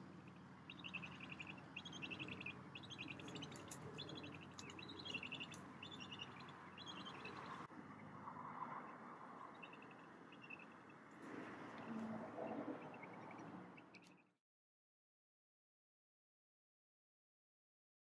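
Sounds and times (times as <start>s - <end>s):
birds chattering trills: 0.0s - 7.7s.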